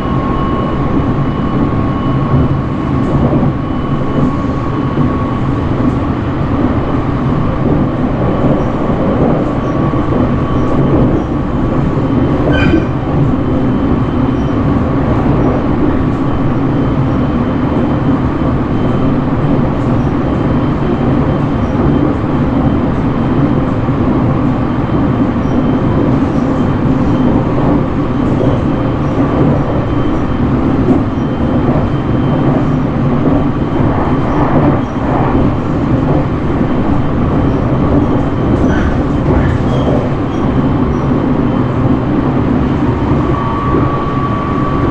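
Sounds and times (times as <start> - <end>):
train wheels rumbling on rails: 0.0 - 44.9
high squeak: 12.5 - 13.0.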